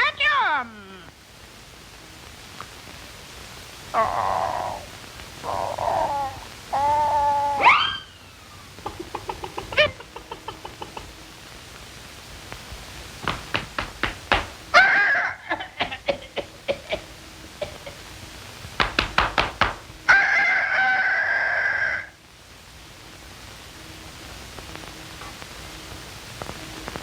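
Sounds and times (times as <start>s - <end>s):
buzzy squawking call: 5.4s - 8.3s.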